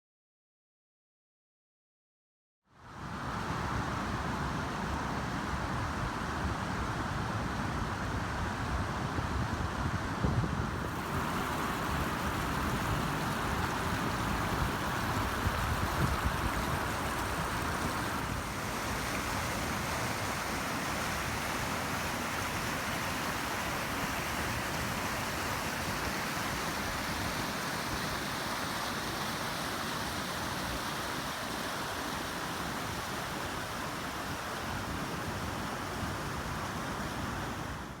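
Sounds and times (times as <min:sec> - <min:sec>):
wind buffeting microphone: 0:09.4 - 0:20.0
steady rushing hiss: 0:10.8 - 0:29.6.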